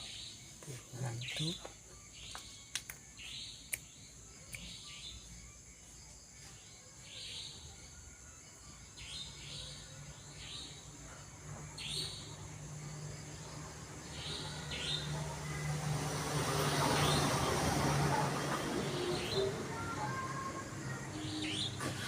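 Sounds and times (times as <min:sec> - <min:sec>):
high insect drone: 0:00.0 - 0:22.0
sharp clicks: 0:02.3 - 0:03.0.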